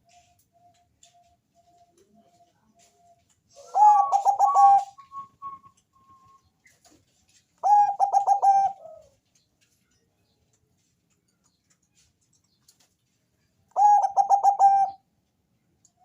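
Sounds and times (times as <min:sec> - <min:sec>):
dove cooing: 0:03.5 - 0:05.3, 0:07.6 - 0:09.2, 0:13.7 - 0:15.0.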